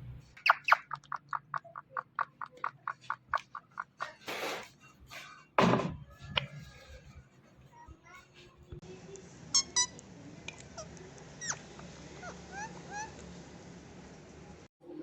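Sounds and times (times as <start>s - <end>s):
harsh parakeet calls: 0.4s - 4.0s, 11.4s - 13.3s
parakeet chirping: 0.4s - 4.0s, 10.8s - 13.3s.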